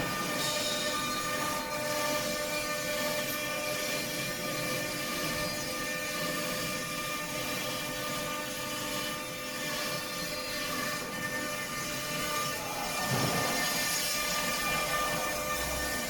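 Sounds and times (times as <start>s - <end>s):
stone router spindle whine: 0.0s - 16.0s.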